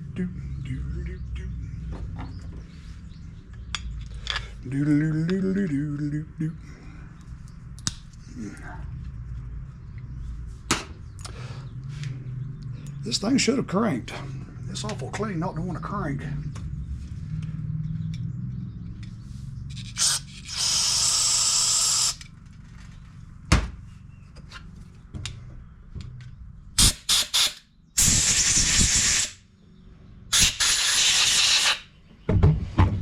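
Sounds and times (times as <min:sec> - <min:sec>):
parts clicking and knocking: 0:03.5 - 0:04.6
hissing spray blasts: 0:26.8 - 0:29.4, 0:30.3 - 0:31.9.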